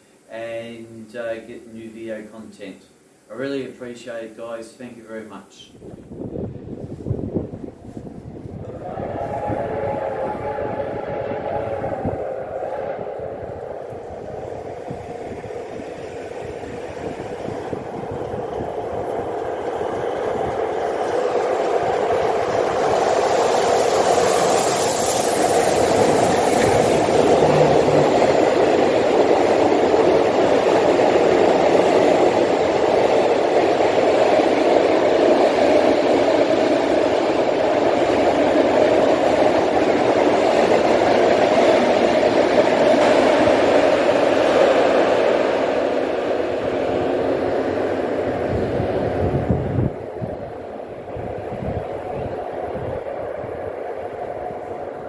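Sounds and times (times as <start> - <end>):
train wheels clattering on rails: 14.2 - 50.2.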